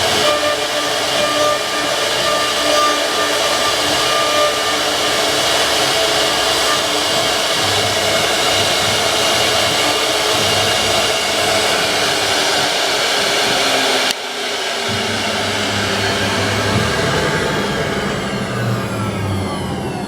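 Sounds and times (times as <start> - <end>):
router spindle whine and cutting: 0.0 - 20.0
whining tones gliding downward: 0.0 - 20.0.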